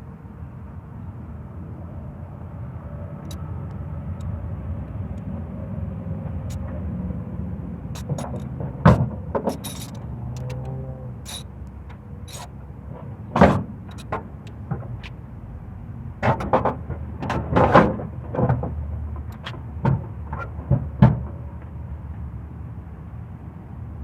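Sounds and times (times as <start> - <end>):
low engine hum: 0.0 - 24.0
heavy clunks and knocks: 8.0 - 10.7, 16.2 - 21.4.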